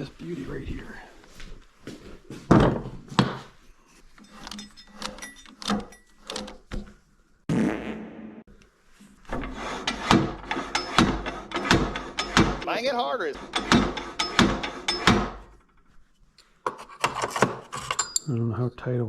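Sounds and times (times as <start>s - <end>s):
knocks of workpiece in lathe chuck: 9.4s - 12.6s, 13.4s - 15.4s.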